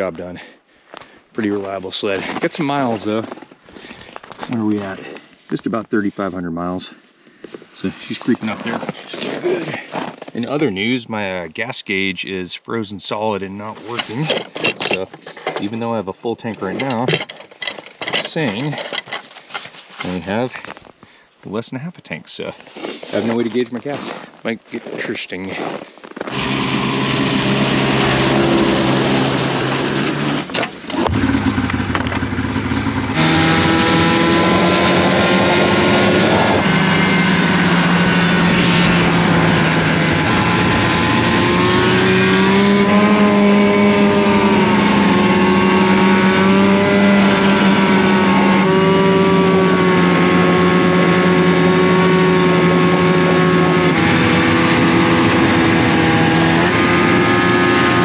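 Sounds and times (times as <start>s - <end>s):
snowmobile engine running: 7.8s - 11.0s, 26.2s - 58.0s.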